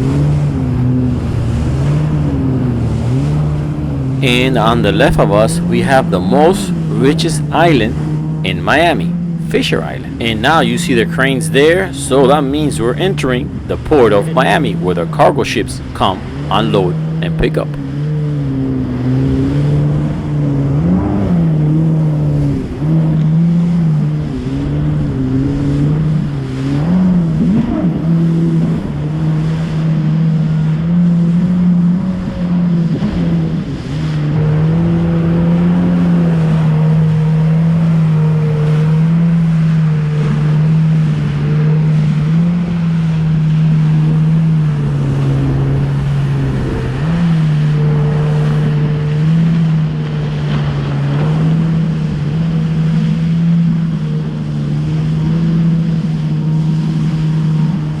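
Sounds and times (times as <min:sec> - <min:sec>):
jet ski engine droning: 0:00.0 - 0:58.0.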